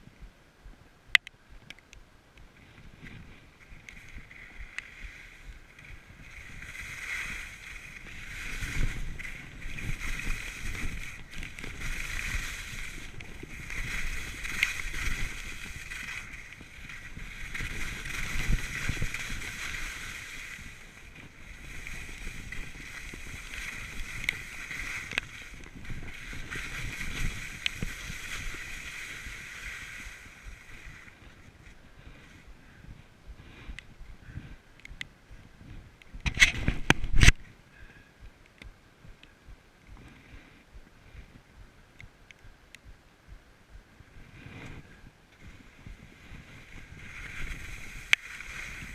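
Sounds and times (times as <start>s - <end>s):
wind rushing on microphone: 2.4s - 37.6s, 40.7s - 48.9s
skis scraping on hard snow: 2.6s - 32.4s, 44.2s - 48.9s.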